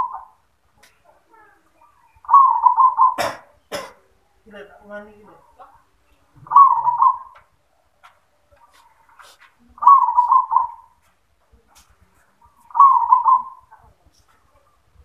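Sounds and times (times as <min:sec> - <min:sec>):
dove cooing: 0:00.0 - 0:00.4, 0:01.8 - 0:03.9, 0:06.4 - 0:07.5, 0:08.7 - 0:11.0, 0:12.5 - 0:14.0.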